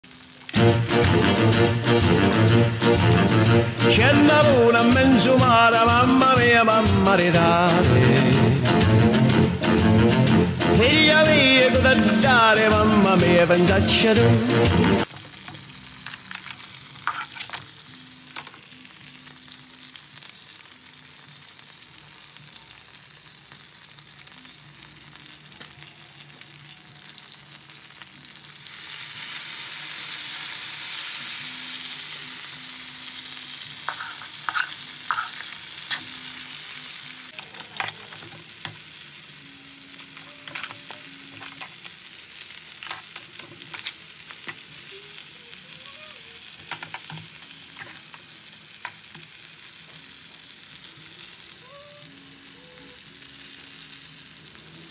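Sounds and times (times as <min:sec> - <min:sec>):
crabs sizzling in wok: 0:00.0 - 0:07.8, 0:15.0 - 0:54.9
utensil scraping pan: 0:33.9 - 0:36.0.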